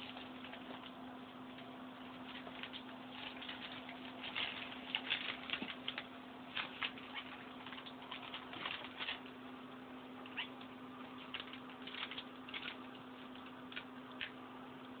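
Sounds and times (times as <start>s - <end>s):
steady low hum: 0.0s - 15.0s
newspaper crackling and tearing: 2.1s - 9.3s, 11.1s - 14.4s.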